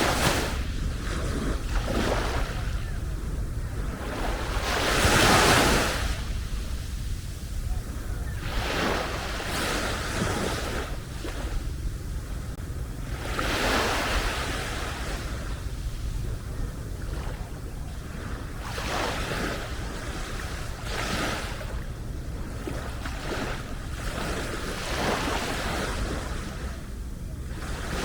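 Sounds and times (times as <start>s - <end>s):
small waves breaking: 0.0s - 28.0s.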